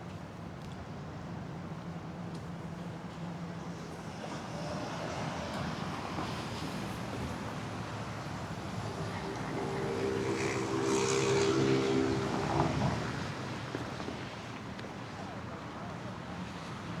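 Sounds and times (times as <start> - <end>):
steady traffic noise: 0.0 - 17.0
vehicle engine passing: 8.2 - 14.0.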